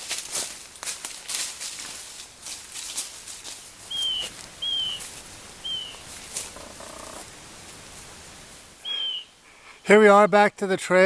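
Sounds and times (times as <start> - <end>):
light crackling and rustling: 0.0 - 8.8
small bird calling: 3.9 - 7.3, 8.8 - 9.4.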